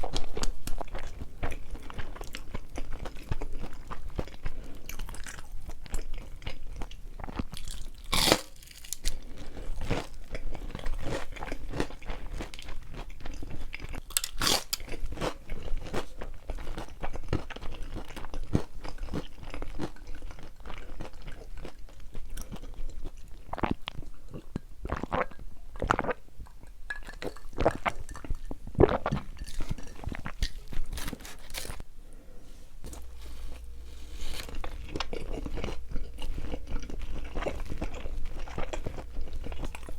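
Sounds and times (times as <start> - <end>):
chewing and crunching pizza: 0.0 - 26.2, 27.1 - 31.8, 32.8 - 39.9.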